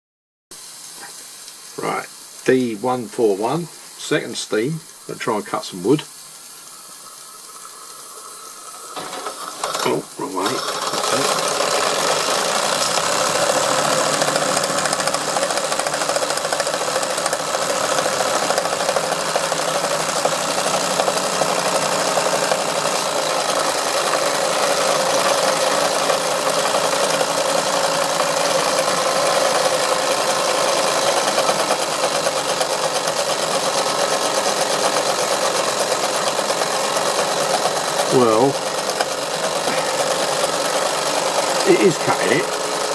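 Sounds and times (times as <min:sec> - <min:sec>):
toy steam engine running: 0:01.8 - 0:42.9
model saw cutting wood: 0:08.9 - 0:42.9.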